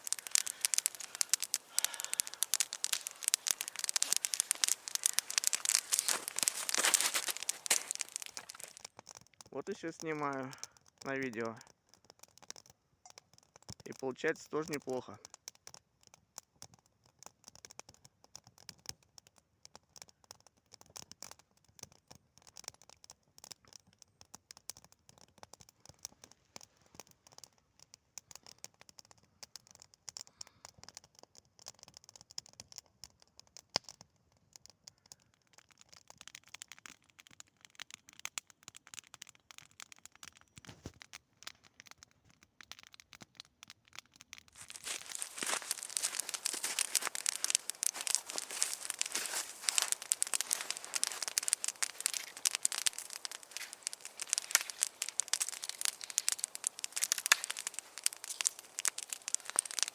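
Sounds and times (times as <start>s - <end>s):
wood fire crackling: 0.0s - 11.7s, 44.3s - 59.9s.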